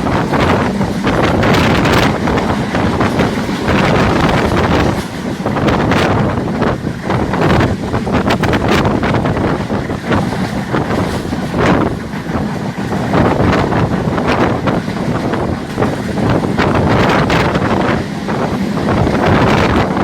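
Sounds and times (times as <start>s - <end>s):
moving train running: 0.0s - 20.0s
wind buffeting microphone: 0.0s - 20.0s.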